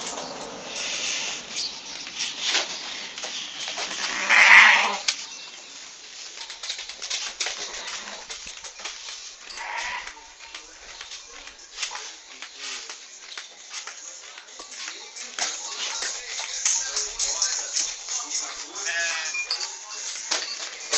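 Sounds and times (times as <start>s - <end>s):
goat bleating: 3.9s - 5.1s, 9.5s - 10.3s, 18.7s - 19.5s.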